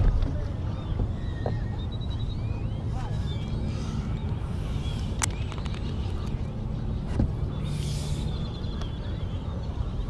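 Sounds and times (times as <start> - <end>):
low rumble: 0.0 - 10.0
faint high bird calls: 0.6 - 6.2.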